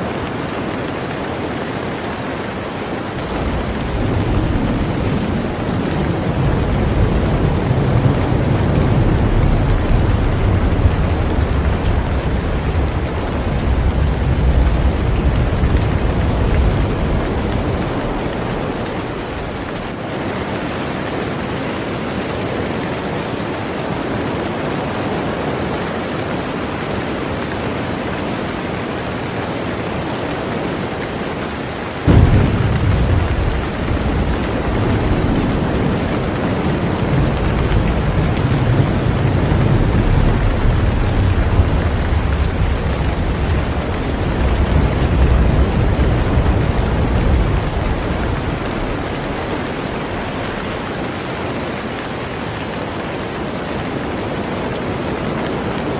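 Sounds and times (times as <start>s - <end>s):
heavy rain on a boat: 0.0s - 55.9s
deep low rumble: 32.1s - 50.0s.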